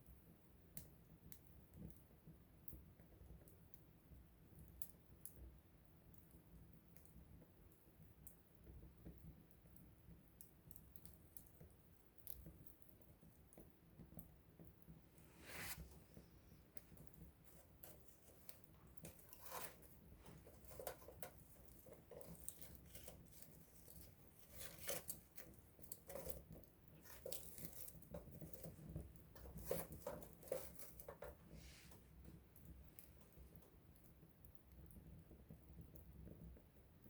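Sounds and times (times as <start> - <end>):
campfire crackling and popping: 0.7 - 15.2.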